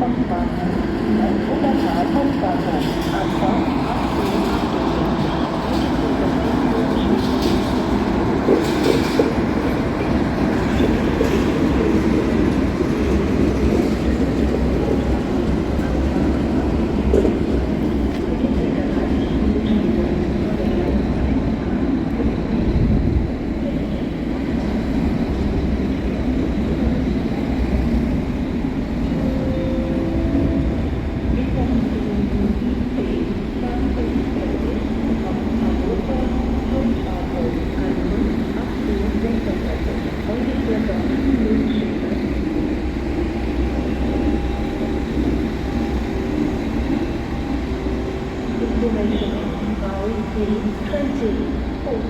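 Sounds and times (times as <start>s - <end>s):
train rumbling on tracks: 0.0s - 52.0s.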